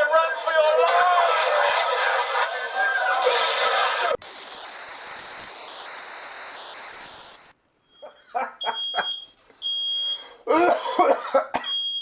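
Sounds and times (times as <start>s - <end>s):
short bursts of noise: 3.5s - 7.7s
steady hiss: 4.1s - 7.8s
smoke alarm beeps: 7.9s - 10.4s, 11.6s - 12.0s.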